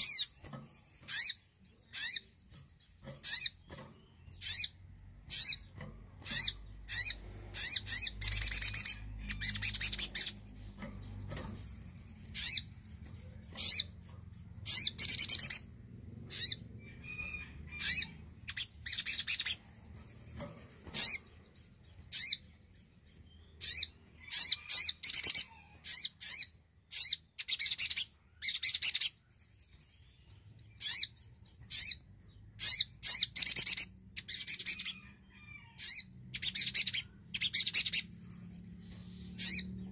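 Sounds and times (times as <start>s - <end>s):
bird chips and trills: 0.0s - 39.9s.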